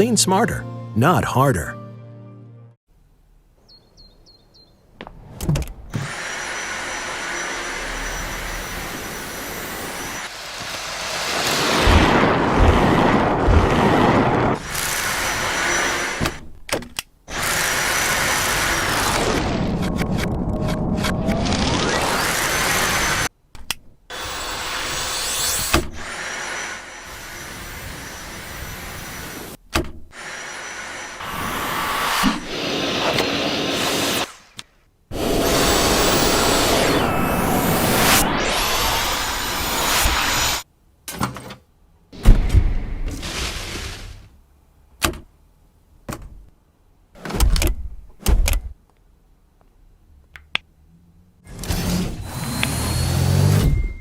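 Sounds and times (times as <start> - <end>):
vacuum cleaner running: 6.0 - 16.1, 30.2 - 34.2, 35.1 - 40.6.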